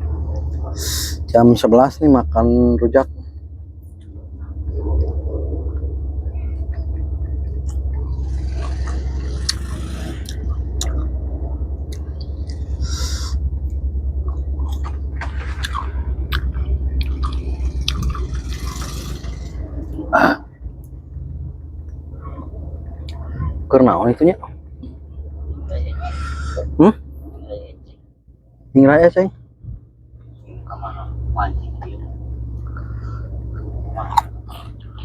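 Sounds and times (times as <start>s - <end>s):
steady low rumble: 0.0s - 35.0s
crunching of eating: 14.6s - 19.5s.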